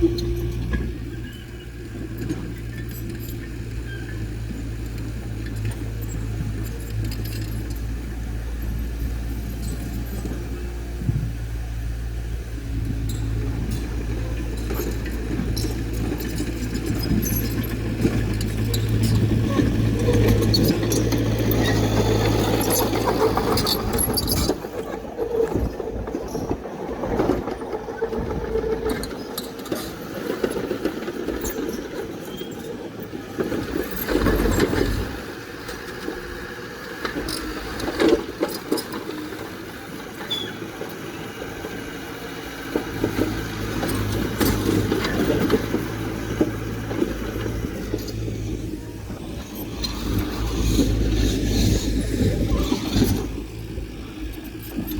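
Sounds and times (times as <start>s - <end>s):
metallic clanks and squeaks: 0.0s - 4.7s, 13.0s - 26.6s, 28.3s - 32.8s, 37.0s - 41.7s
heavy diesel machine engine: 0.0s - 54.9s.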